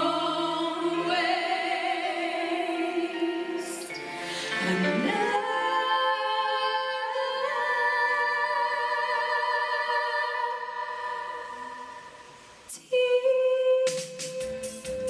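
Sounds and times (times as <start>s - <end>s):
choir singing sustained chord: 0.0s - 12.6s.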